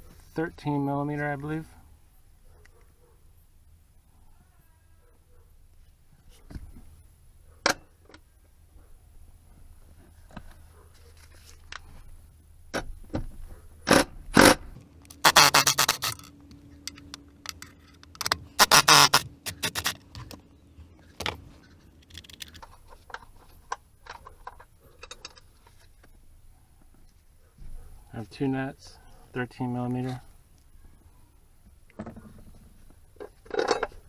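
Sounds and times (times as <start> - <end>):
ratchet clicking: 14.4 - 16.3, 16.9 - 20.1
metal tools clinking and scraping: 15.1 - 20.0.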